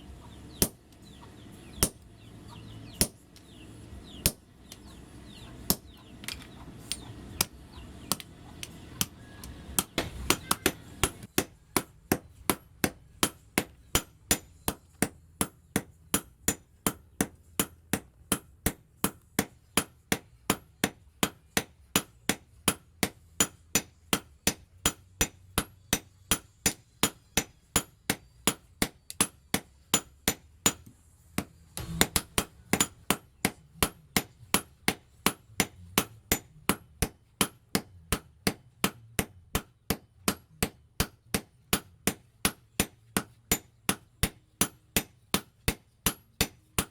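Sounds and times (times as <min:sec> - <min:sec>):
hammer striking steel on anvil: 0:00.5 - 0:06.1, 0:06.9 - 0:46.9.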